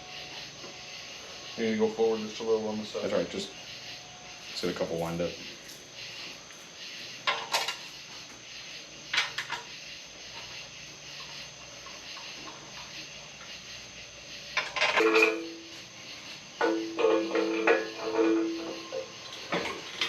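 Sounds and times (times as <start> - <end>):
two-tone whine: 0.0 - 5.8, 12.8 - 20.0
metal parts and tools clinking: 14.6 - 15.6.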